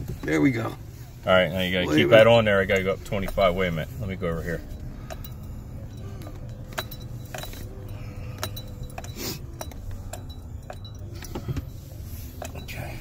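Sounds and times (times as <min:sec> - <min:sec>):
light clicks and clinks: 0:04.6 - 0:13.0.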